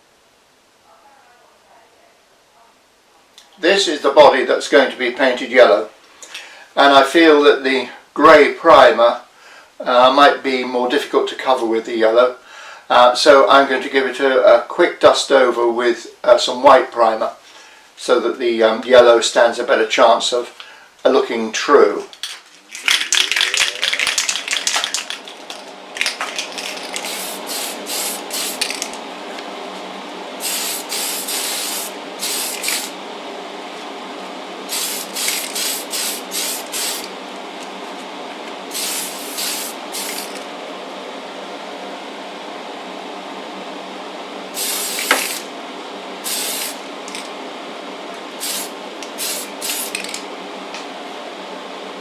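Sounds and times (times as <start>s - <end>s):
steady hum: 24.0s - 52.0s
spray paint hissing bursts: 27.0s - 28.8s, 30.4s - 33.0s, 34.7s - 37.1s, 38.7s - 40.4s, 44.6s - 45.5s, 46.2s - 46.8s, 48.4s - 50.0s.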